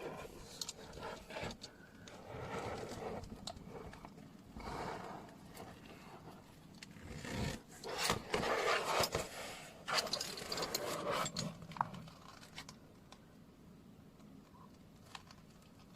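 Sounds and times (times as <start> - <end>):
dog collar rustling and clinking: 9.9 - 12.4.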